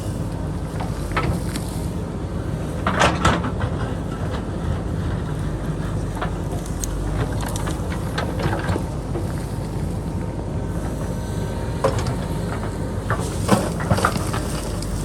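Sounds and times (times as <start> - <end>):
diesel engine running under load: 0.0 - 15.0
rock scraping against bucket: 13.1 - 15.0.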